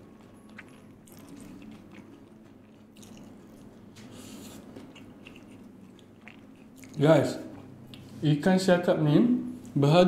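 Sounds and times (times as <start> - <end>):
person chewing food: 0.0 - 8.0.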